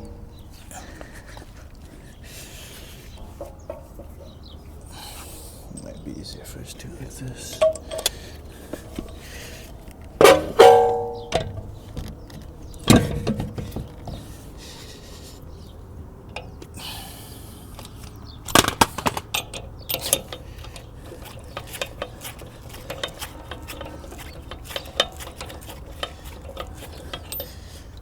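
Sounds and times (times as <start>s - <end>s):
metal tools clinking and knocking: 7.4s - 9.2s, 10.2s - 14.3s, 17.8s - 28.0s.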